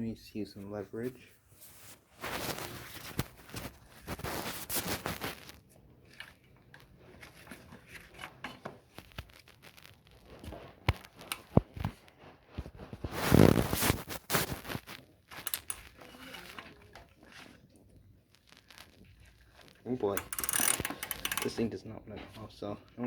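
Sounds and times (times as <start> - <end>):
wrench scraping and clicking: 11.2 - 11.6, 15.3 - 16.7, 20.0 - 21.8.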